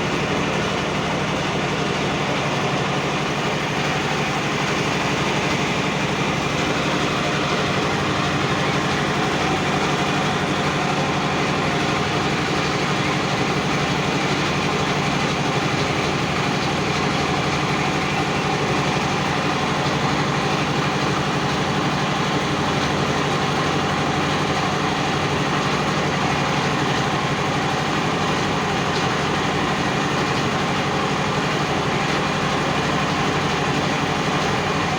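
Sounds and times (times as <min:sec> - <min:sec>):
motorboat engine running: 0:00.0 - 0:34.9.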